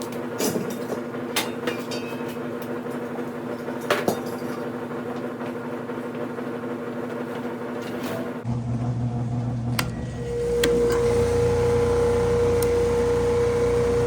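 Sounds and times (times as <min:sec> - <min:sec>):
woodshop machine humming: 0:08.4 - 0:14.0.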